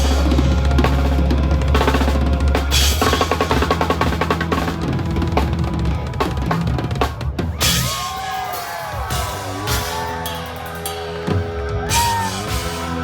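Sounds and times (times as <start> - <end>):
sustained bass line: 0.0 - 7.9, 9.1 - 13.0
drum kit snare and bass drum: 0.0 - 13.0.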